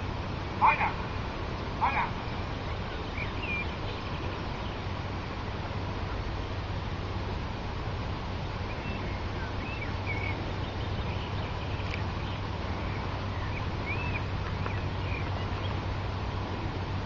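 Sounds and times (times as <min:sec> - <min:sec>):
low outdoor rumble: 0:00.0 - 0:17.0
small birds chirping: 0:01.8 - 0:06.2, 0:08.6 - 0:16.5.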